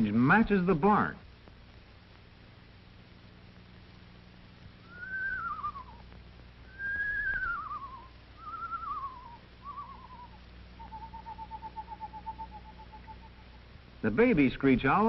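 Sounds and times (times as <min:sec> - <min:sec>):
owl long level trill: 0:04.8 - 0:13.8
screech owl whinnies: 0:04.9 - 0:06.0, 0:06.7 - 0:13.6.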